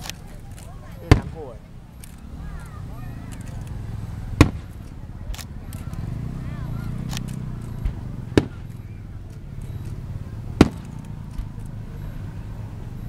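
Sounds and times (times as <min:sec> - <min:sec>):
fireworks bangs: 0:01.0 - 0:01.6, 0:04.2 - 0:05.0, 0:07.8 - 0:09.0, 0:10.5 - 0:11.5
faint firework pops: 0:01.1 - 0:01.5, 0:04.4 - 0:06.0, 0:07.1 - 0:08.9, 0:10.6 - 0:11.2.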